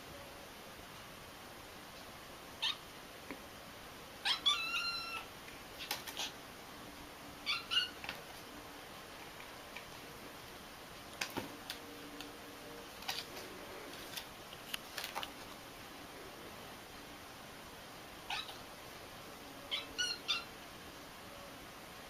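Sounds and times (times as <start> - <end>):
cat meowing: 4.2 - 5.3, 7.4 - 8.0, 18.3 - 18.6, 19.7 - 20.5.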